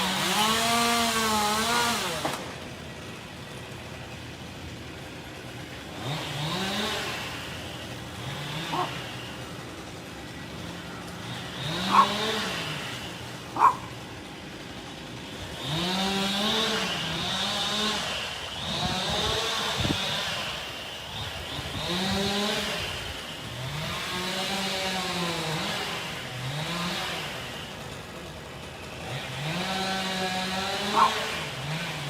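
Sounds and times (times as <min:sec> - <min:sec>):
chainsaw engine revving: 0:00.0 - 0:32.0.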